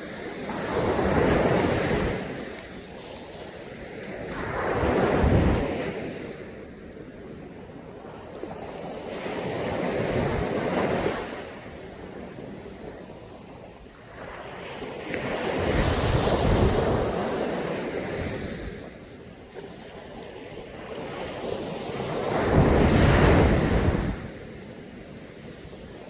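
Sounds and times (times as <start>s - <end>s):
waves breaking on sandy beach: 0.0s - 26.0s.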